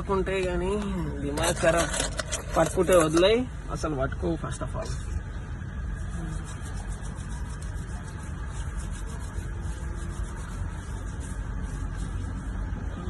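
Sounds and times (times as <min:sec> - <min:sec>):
car rumble inside cabin: 0:06.0 - 0:13.0.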